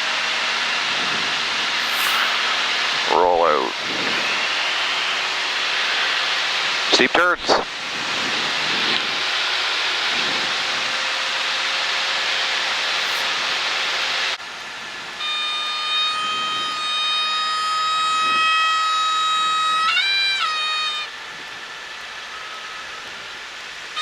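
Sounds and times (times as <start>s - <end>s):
aircraft engine and airflow: 1.7s - 6.3s, 12.7s - 13.6s.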